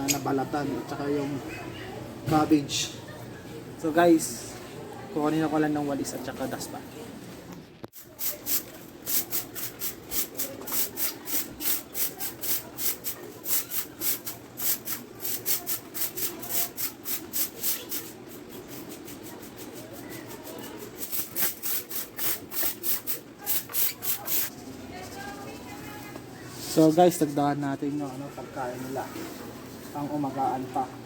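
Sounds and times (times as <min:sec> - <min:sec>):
broom sweeping: 0:08.0 - 0:24.5.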